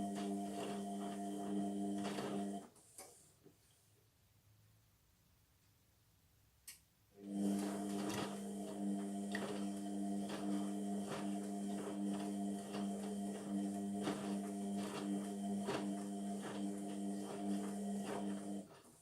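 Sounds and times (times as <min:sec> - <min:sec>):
washing machine humming: 0:00.0 - 0:02.6, 0:07.2 - 0:19.0.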